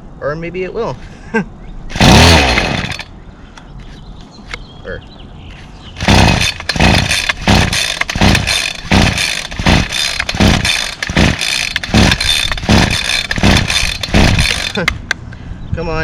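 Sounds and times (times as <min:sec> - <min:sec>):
recoil starter yanks: 0:01.9 - 0:03.1, 0:06.0 - 0:15.2.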